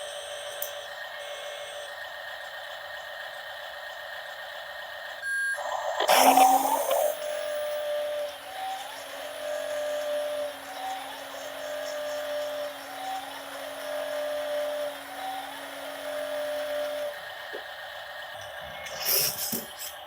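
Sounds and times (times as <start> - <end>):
small motor whine: 0.0 - 20.0
steady hum: 5.2 - 12.6.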